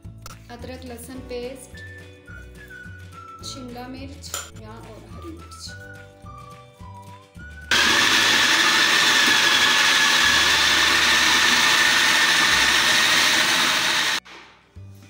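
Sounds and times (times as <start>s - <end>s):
food processor motor whine: 7.7s - 14.2s.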